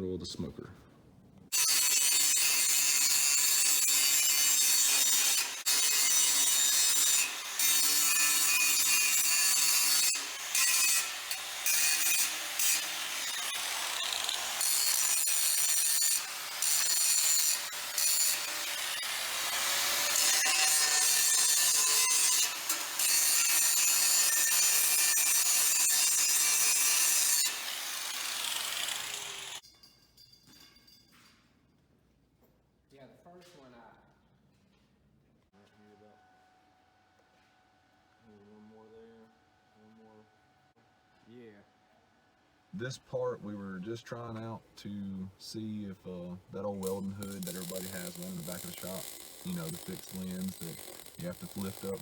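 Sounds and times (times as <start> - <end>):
power tool cutting steel tube: 1.5 - 29.6, 46.8 - 52.0.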